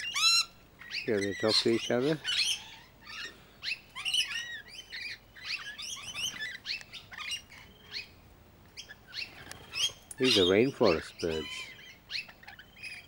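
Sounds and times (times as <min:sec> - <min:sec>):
birds chirping and twittering: 0:00.0 - 0:13.0.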